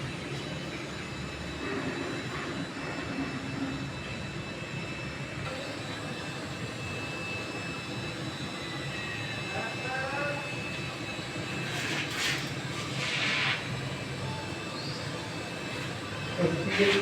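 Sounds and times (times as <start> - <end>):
welding arc hissing: 11.7 - 13.9.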